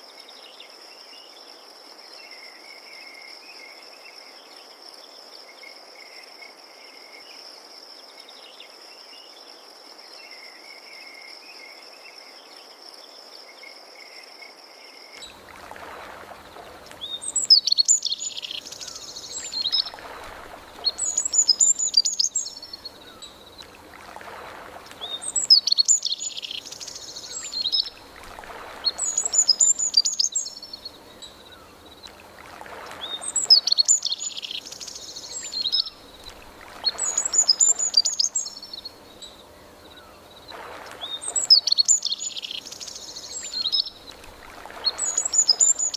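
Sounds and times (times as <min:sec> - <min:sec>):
songbird singing: 0:15.1 - 0:45.9
crickets trilling: 0:15.2 - 0:32.2, 0:39.9 - 0:45.9.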